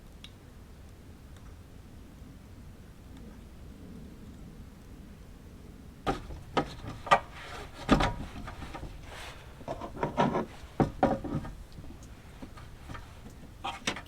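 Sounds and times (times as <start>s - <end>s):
objects knocking and clunking: 6.1s - 14.0s
objects scraping: 6.1s - 14.0s.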